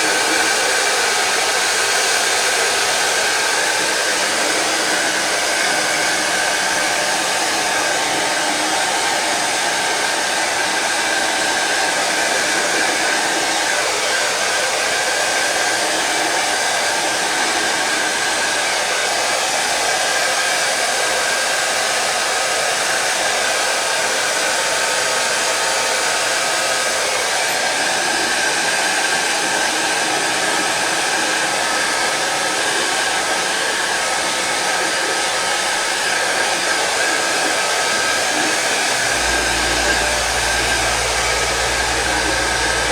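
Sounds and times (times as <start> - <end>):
heat gun blowing: 2.0 - 13.5, 34.1 - 42.9.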